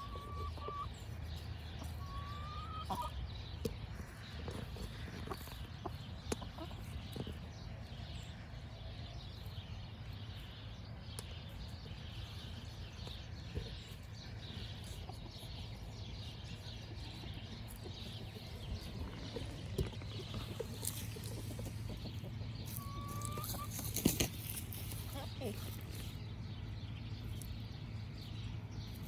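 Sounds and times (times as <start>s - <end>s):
rising bird call: 0.0s - 0.9s, 22.7s - 23.5s
birds chirping: 0.0s - 29.0s.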